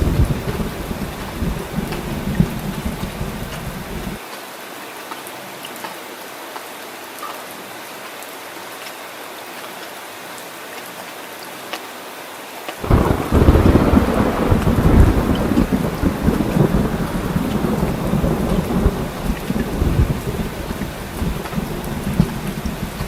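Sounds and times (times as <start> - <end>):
thunder rumbling: 0.0 - 4.2, 12.8 - 23.0
rain pattering: 0.0 - 23.0.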